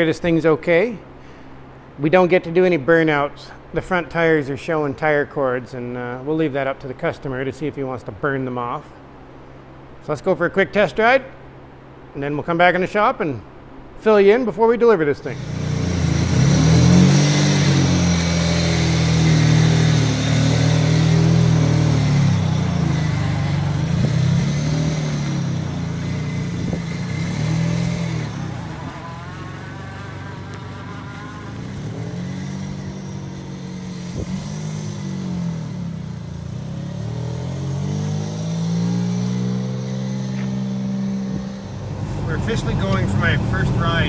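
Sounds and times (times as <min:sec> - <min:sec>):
car engine accelerating: 0:15.2 - 0:44.0.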